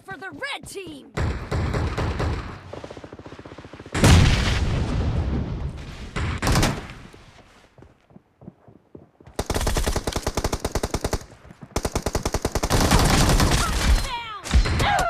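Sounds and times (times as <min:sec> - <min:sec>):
video game automatic gunfire: 0:09.4 - 0:14.0.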